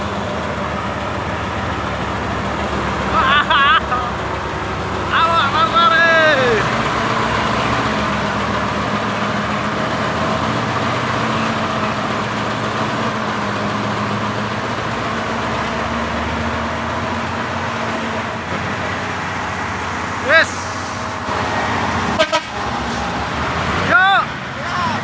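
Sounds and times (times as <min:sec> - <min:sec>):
diesel truck engine running: 0:00.0 - 0:25.0
road noise: 0:00.0 - 0:25.0.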